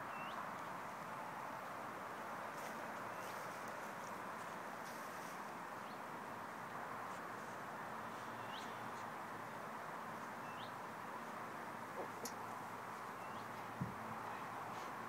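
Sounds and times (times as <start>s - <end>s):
bird chirping: 0.0s - 0.4s, 8.2s - 9.0s, 10.4s - 10.8s, 13.1s - 13.7s
steady background hiss: 0.0s - 15.0s.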